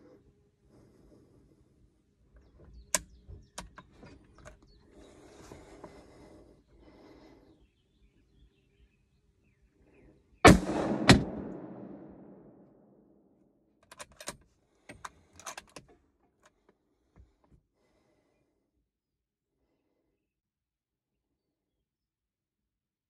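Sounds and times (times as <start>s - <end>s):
rifle shot with echo: 10.4s - 12.9s
rifle bolt clicking: 13.8s - 14.4s.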